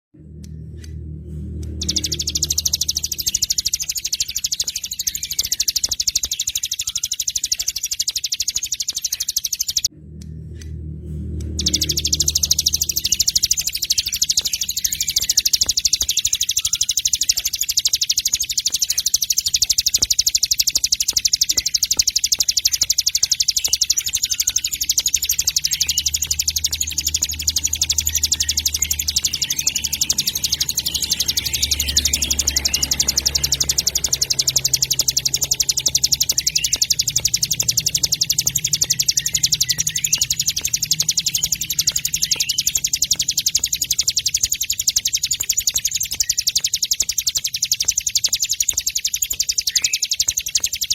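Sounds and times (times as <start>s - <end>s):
low steady hum: 0.2s - 6.0s, 9.8s - 20.4s
songbirds chirping and trilling: 0.2s - 50.9s.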